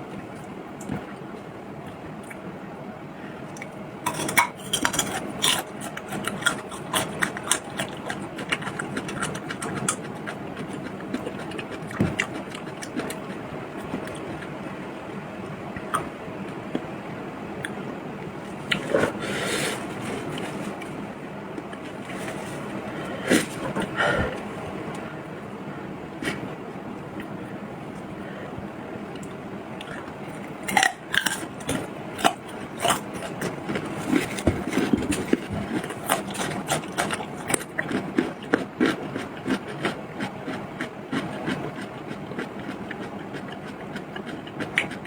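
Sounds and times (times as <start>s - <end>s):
utensils clattering against dishes: 4.1s - 5.7s
steady background hiss: 9.8s - 38.2s.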